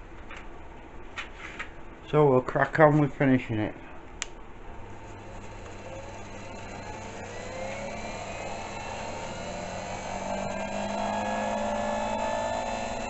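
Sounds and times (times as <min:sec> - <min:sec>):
steady hum: 0:00.0 - 0:13.0
spindle motor whine rising: 0:04.7 - 0:13.0.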